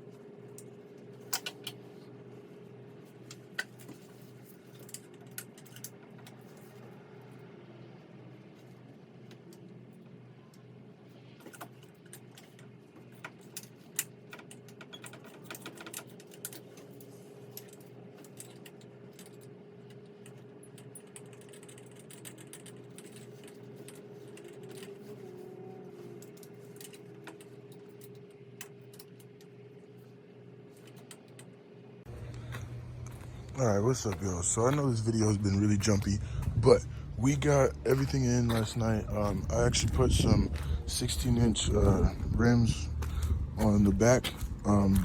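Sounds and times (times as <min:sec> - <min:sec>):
light clicks and rattles: 0:11.4 - 0:29.6
steady hum: 0:16.3 - 0:45.0.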